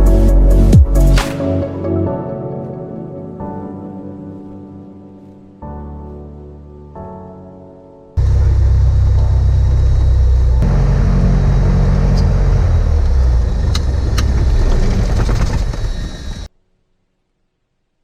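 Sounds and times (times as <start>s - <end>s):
airplane engine and propeller rumble: 8.2s - 16.5s.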